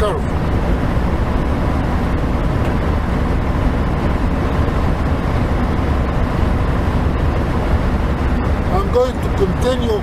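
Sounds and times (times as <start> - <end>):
truck engine and road noise: 0.0 - 10.0.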